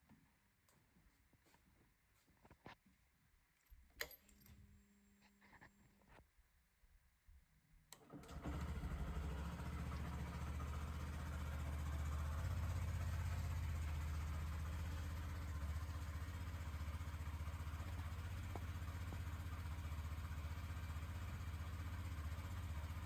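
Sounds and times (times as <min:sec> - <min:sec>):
motorcycle engine starting and idling: 0:08.0 - 0:23.0.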